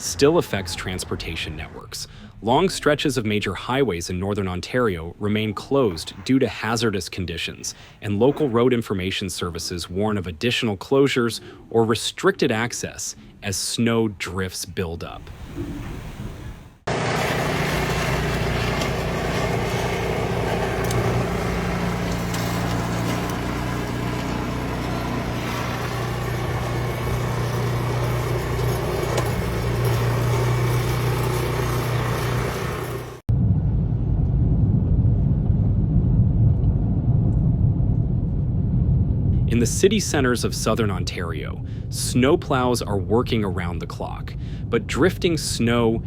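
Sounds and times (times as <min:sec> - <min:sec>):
road and wind noise: 0:15.3 - 0:33.3
vehicle engine hum: 0:15.3 - 0:33.3
dull low rumble: 0:33.2 - 0:46.0.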